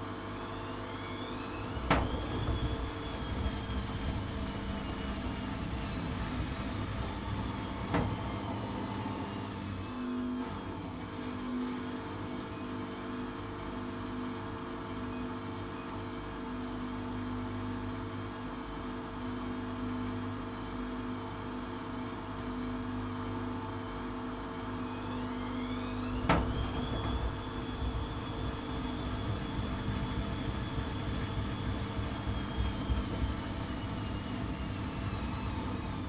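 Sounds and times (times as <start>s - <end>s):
washing machine motor hum: 0.0s - 12.6s, 24.5s - 36.0s
drum spinning whine: 0.8s - 10.1s, 24.8s - 36.0s.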